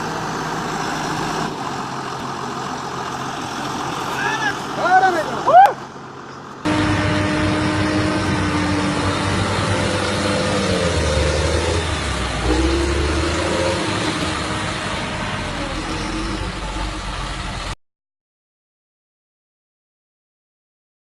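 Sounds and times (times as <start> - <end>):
heavy vehicle engine revving: 0.0 - 17.8.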